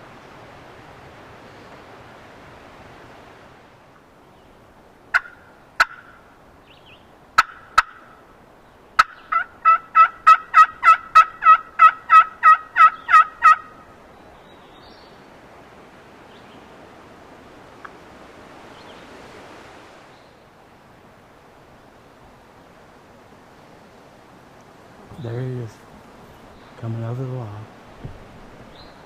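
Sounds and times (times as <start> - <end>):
turkey clucks: 5.1 - 6.2, 7.4 - 8.1, 9.0 - 13.8
turkey yelps: 5.1 - 6.2, 7.4 - 8.1, 9.0 - 13.8.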